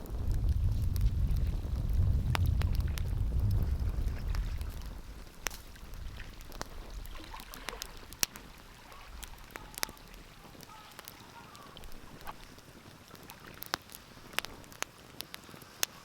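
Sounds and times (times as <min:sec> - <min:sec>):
low rumble: 0:00.0 - 0:10.4
wood fire crackling and popping: 0:00.0 - 0:16.0.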